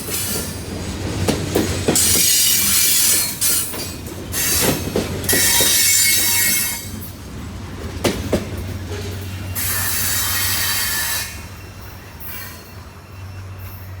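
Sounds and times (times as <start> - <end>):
train rumble: 0.0 - 14.0
train wheels squealing on rails: 0.0 - 14.0.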